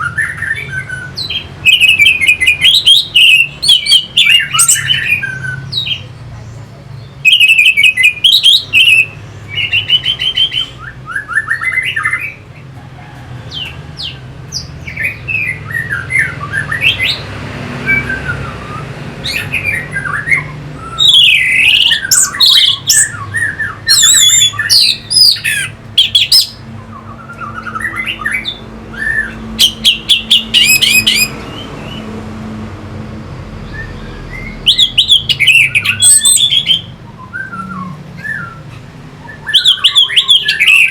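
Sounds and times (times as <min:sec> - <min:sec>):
thrush singing: 0:13.4 - 0:40.9.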